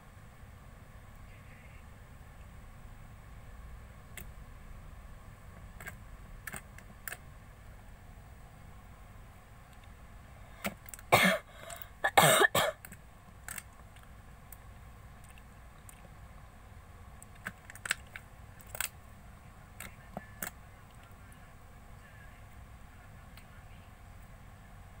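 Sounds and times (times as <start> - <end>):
small clicks and pops: 4.1 - 4.4, 5.6 - 7.2, 12.8 - 16.5, 17.2 - 19.0.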